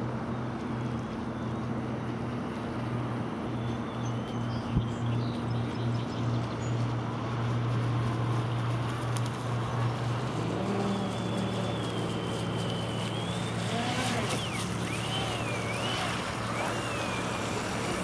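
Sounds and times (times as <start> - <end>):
rc boat motor humming: 6.3 - 18.0
faint high whine: 10.7 - 18.0.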